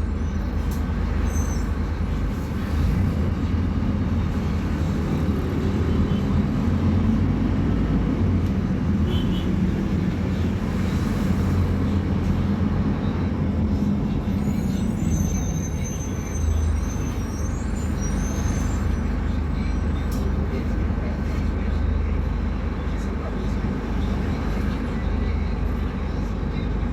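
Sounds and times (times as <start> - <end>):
faint high squeals: 0.0 - 2.2, 14.3 - 20.3
bus diesel engine rumbling: 0.0 - 26.9.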